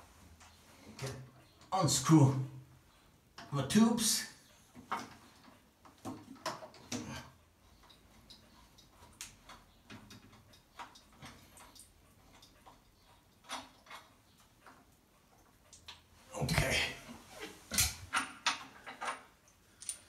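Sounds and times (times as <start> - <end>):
faint clicks and light knocks: 4.5 - 16.3.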